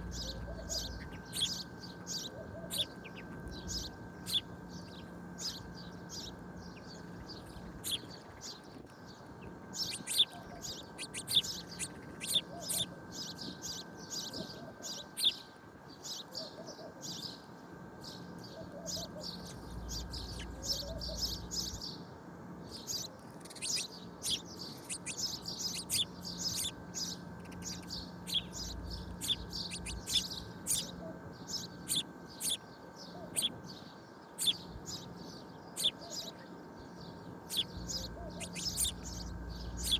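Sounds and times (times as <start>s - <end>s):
faint steady hum: 0.0s - 39.9s
small birds chirping: 0.0s - 39.9s.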